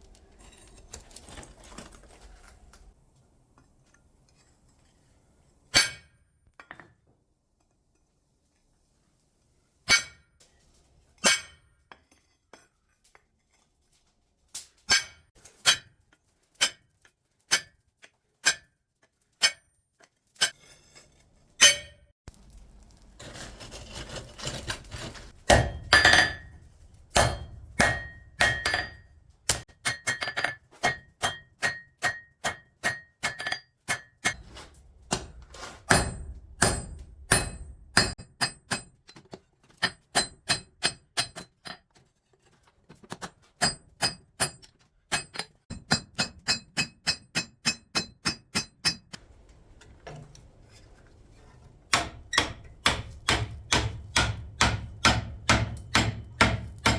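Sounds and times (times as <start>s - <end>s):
rough scraping noise: 22.3s - 25.5s, 34.4s - 35.9s
hammer ringing on anvil: 27.2s - 29.0s.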